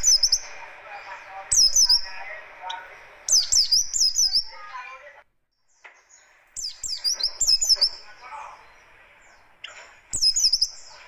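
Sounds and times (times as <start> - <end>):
bird singing quick high chirps: 0.0 - 0.5, 1.5 - 4.6, 6.0 - 8.8, 9.6 - 11.0
soft low bird twittering: 0.0 - 4.8, 5.5 - 11.0.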